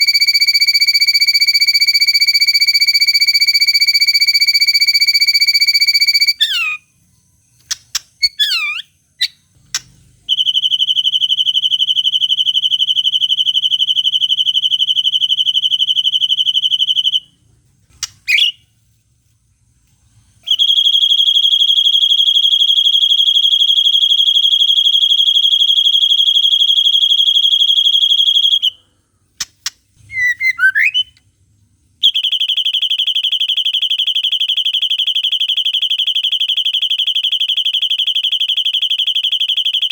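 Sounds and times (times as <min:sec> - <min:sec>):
short sweeping bird chirps: 0:30.1 - 0:31.2.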